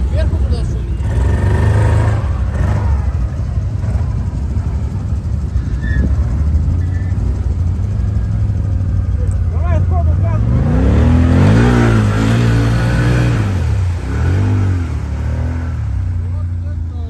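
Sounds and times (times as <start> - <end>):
quad bike engine running: 0.0 - 17.0.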